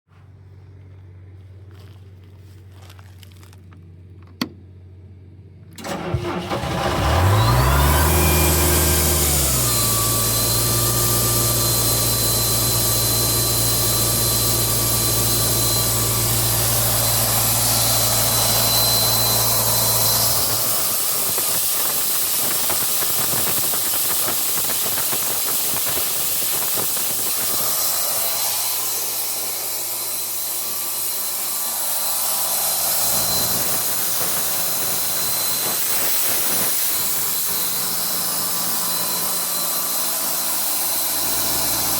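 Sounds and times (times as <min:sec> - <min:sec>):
low engine hum: 0:00.1 - 0:20.8
air compressor hissing: 0:05.8 - 0:41.9.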